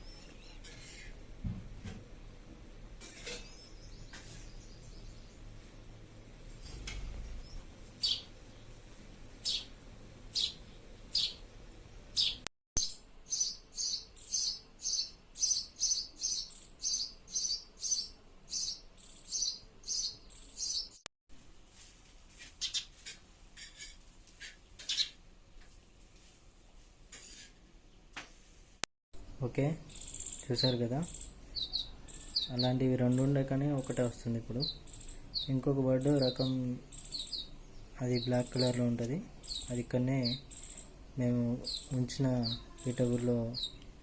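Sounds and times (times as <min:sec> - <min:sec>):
house sparrow chirping: 0:03.2 - 0:05.8, 0:06.6 - 0:21.0, 0:22.6 - 0:22.9, 0:24.8 - 0:25.2, 0:29.5 - 0:44.0.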